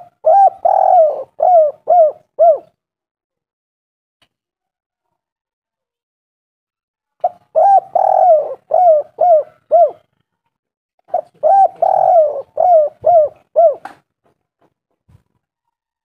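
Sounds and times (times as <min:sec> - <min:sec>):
dove cooing: 0:00.0 - 0:02.7, 0:07.2 - 0:10.1, 0:11.1 - 0:14.0.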